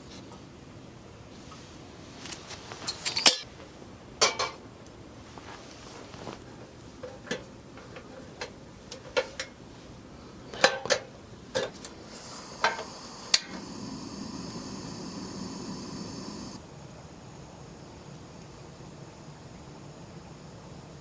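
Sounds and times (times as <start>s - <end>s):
steady hiss: 11.5s - 16.6s.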